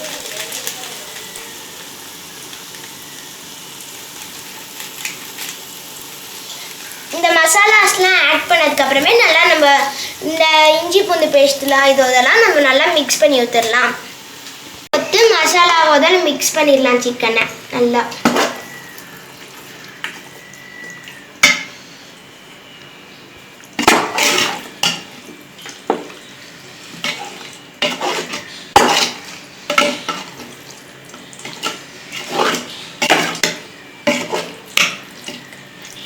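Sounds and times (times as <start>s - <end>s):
spoon scraping against pot: 18.2s - 18.9s, 23.8s - 25.1s, 26.8s - 30.6s, 31.4s - 35.6s.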